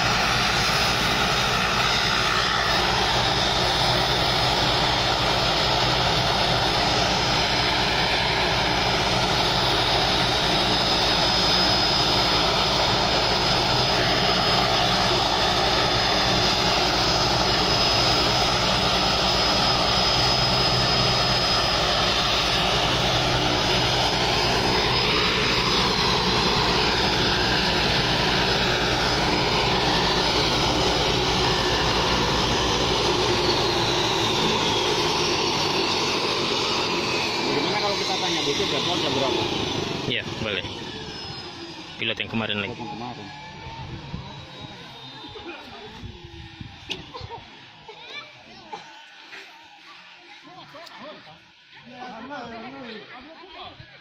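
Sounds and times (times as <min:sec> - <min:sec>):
propeller aircraft engine running: 0:00.0 - 0:52.8.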